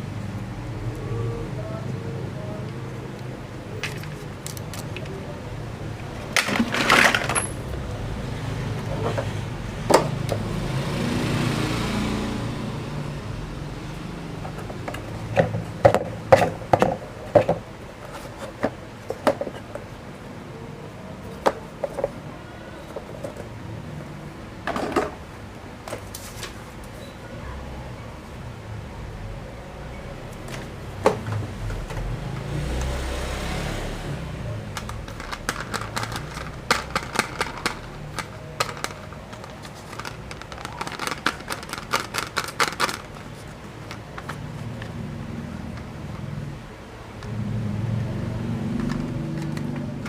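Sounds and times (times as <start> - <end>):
toy vehicles knocking and clattering: 3.8 - 5.2, 6.2 - 7.7, 14.4 - 19.9, 21.3 - 22.2, 34.6 - 44.8.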